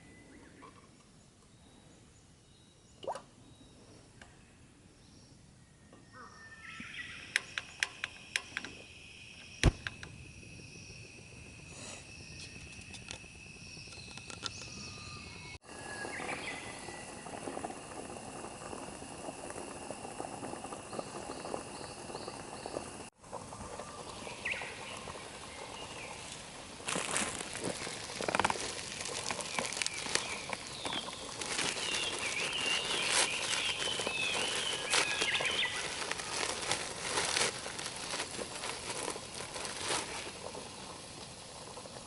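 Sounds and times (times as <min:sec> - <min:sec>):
insects trilling: 0:06.1 - 0:42.0
loud snap: 0:09.6 - 0:10.1
fine crackling: 0:15.7 - 0:42.0.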